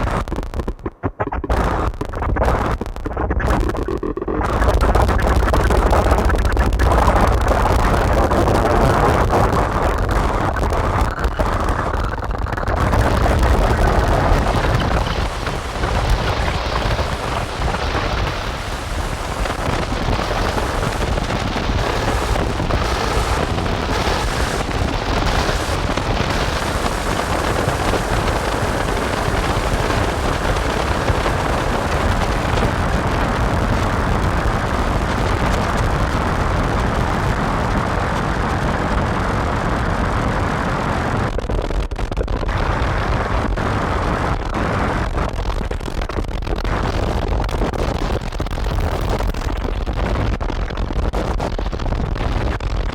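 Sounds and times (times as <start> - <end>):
distorted synthesizer noise drone: 11.4 - 39.4.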